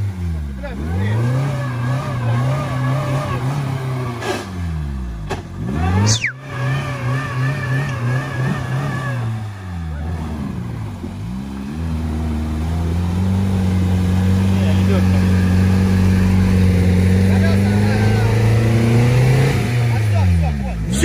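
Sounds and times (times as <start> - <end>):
engine revving under load: 0.0 - 21.0
falling whistle: 6.0 - 6.4.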